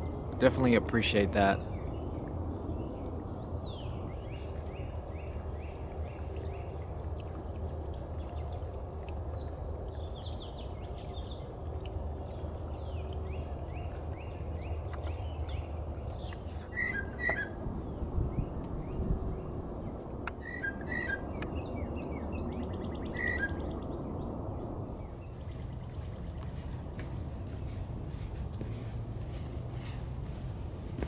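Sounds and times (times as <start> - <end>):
songbird whistling: 16.7 - 17.6, 20.4 - 21.4, 22.8 - 23.8.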